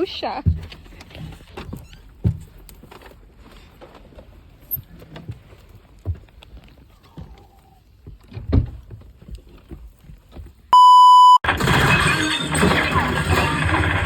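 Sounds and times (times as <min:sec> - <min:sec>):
electronic beep: 0:10.8 - 0:11.4.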